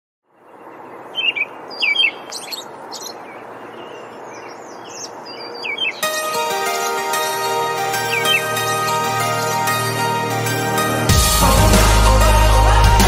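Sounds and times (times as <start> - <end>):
outdoor ambience hiss: 0.3 - 12.8
birds chirping and trilling: 0.3 - 13.0
music: 6.0 - 13.0.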